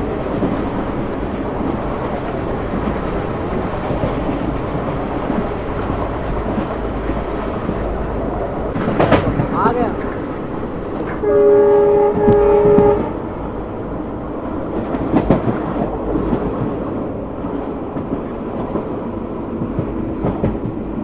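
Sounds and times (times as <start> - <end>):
train rumbling on track: 0.0 - 21.0
locomotive horn blast: 11.1 - 13.3.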